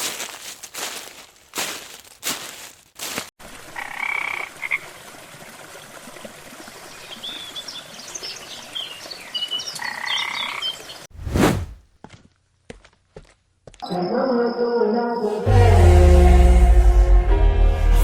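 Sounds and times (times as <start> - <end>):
loud whoosh: 11.2 - 11.8.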